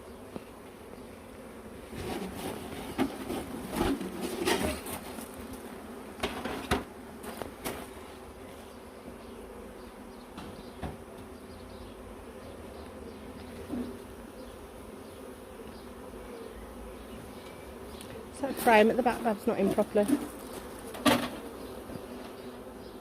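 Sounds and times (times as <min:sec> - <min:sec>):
honeybees buzzing: 0:00.0 - 0:23.0
wooden knocks on hive box: 0:06.2 - 0:07.8, 0:10.3 - 0:11.4, 0:19.6 - 0:22.4.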